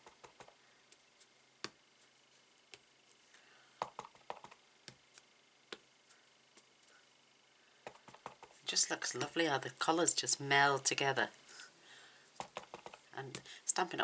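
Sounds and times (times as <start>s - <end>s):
rubber stamp taps and clicks: 3.8s - 4.6s, 7.9s - 8.6s, 12.4s - 13.0s.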